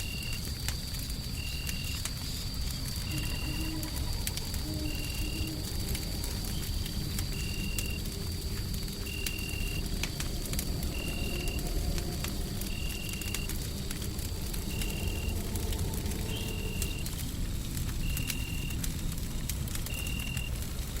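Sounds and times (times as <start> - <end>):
wood fire crackling and popping: 0.0 - 21.0
low rumbling noise: 1.9 - 21.0.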